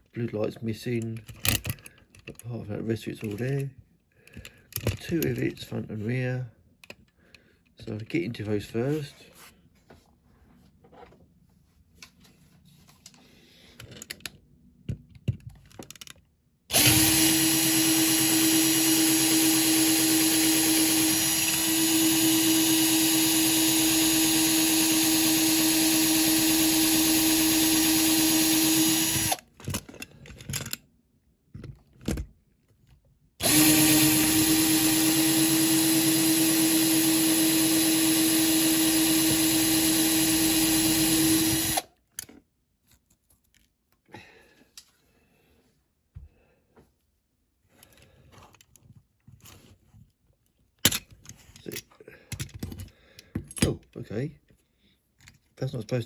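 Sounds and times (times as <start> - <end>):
small electric drill drilling: 16.7 - 29.5, 33.4 - 41.9.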